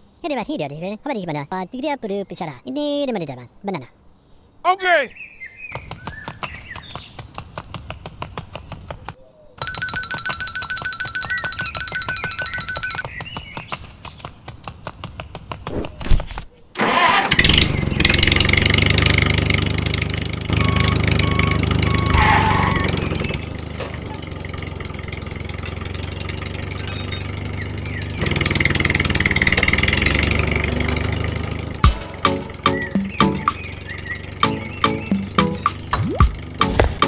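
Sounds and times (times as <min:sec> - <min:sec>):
tractor engine cranking and running: 0:09.6 - 0:13.0, 0:16.8 - 0:35.1, 0:35.8 - 0:37.0.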